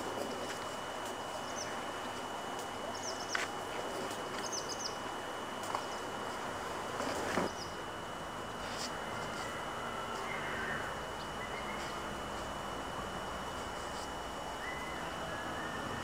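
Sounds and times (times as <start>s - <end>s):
faint high whine: 0.0s - 16.0s
bird chirping: 2.9s - 3.4s, 4.4s - 5.0s, 10.2s - 11.9s, 14.6s - 16.0s.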